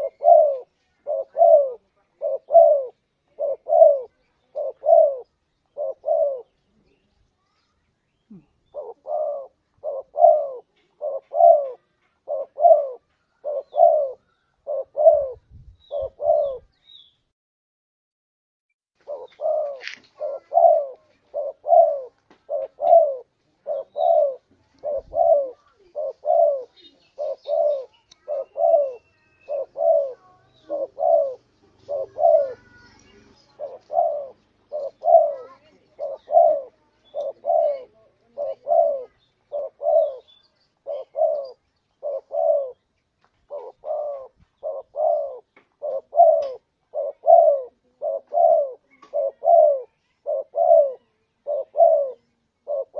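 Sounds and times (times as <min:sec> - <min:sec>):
dove cooing: 0:00.0 - 0:07.1, 0:08.3 - 0:16.7, 0:19.0 - 0:52.9.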